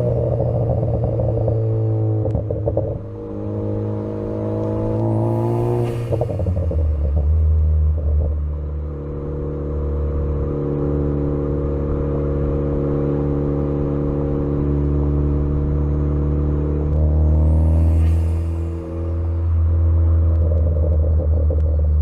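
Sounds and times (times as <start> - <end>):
engine overrun crackles: 0.0 - 3.3, 4.6 - 9.0, 16.9 - 22.0
car engine drone: 0.0 - 22.0.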